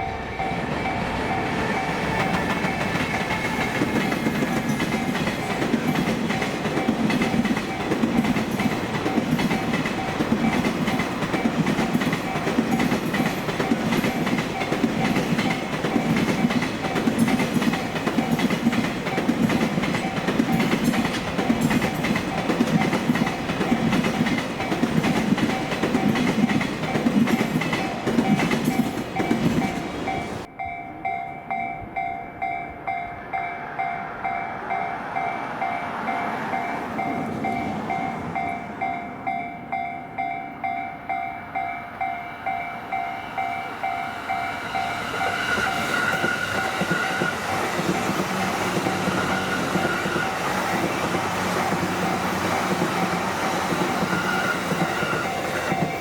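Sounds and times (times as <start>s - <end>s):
train wheels clattering: 0.0s - 30.5s, 42.5s - 56.0s
crossing warning bell ringing: 0.0s - 56.0s.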